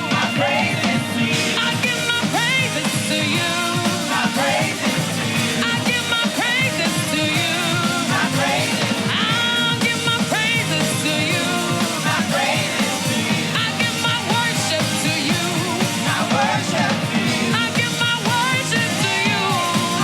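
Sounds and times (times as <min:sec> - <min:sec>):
gospel worship band playing: 0:00.0 - 0:20.0.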